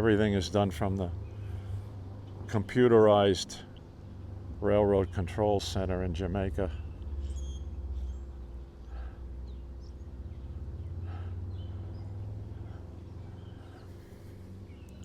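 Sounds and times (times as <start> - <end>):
birds chirping: 0.0 - 15.0
low rumble and hum: 0.0 - 15.0.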